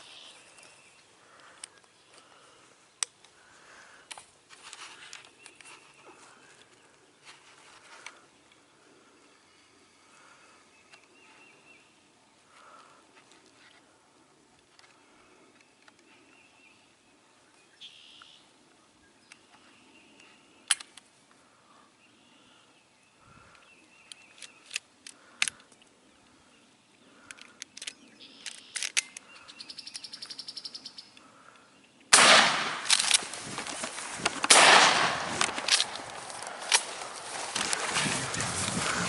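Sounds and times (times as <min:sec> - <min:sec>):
faint birdsong: 0:00.0 - 0:39.0
small sharp clicks: 0:20.2 - 0:21.1, 0:24.0 - 0:26.0, 0:27.2 - 0:30.4
shotgun shots: 0:32.1 - 0:33.2, 0:34.4 - 0:36.9.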